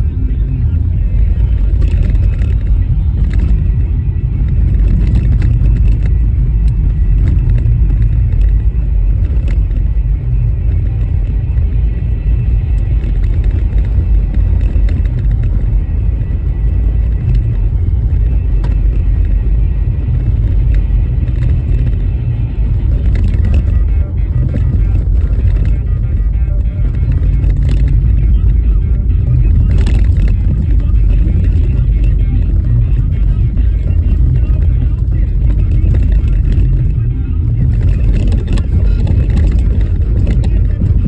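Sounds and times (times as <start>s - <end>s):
tyre and road noise: 0.0s - 41.0s.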